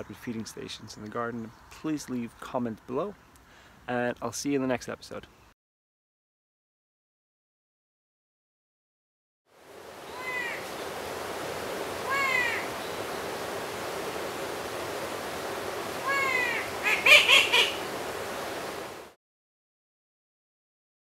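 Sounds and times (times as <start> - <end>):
steady background hiss: 9.5 - 19.2
bird giving harsh calls: 10.0 - 10.8, 12.0 - 13.1, 15.9 - 17.9.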